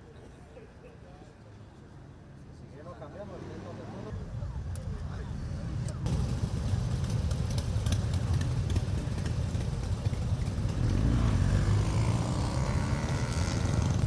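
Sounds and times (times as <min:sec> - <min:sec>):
motorcycle engines rumbling: 0:02.8 - 0:14.0
motorcycle passing close: 0:06.1 - 0:14.0.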